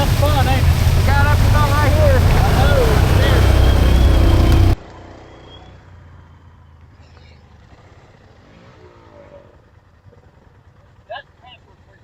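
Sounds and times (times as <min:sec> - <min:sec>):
four-wheeler engine idling: 0:00.0 - 0:04.8, 0:09.5 - 0:12.0
engine revving: 0:00.0 - 0:05.5.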